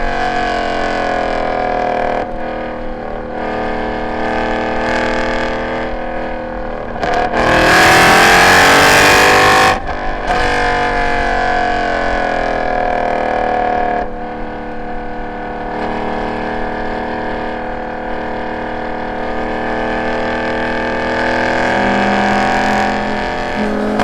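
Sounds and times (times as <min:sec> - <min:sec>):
car engine revving hard: 0:00.0 - 0:24.0.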